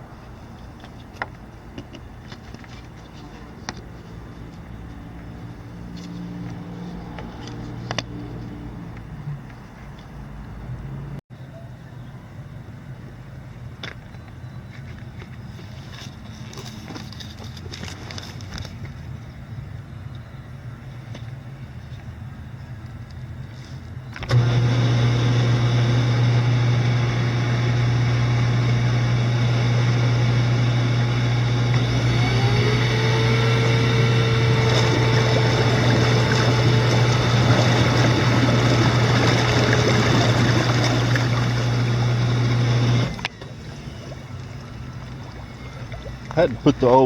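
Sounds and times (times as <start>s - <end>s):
hot tub motor humming: 24.2s - 47.0s
churning water: 24.3s - 47.0s.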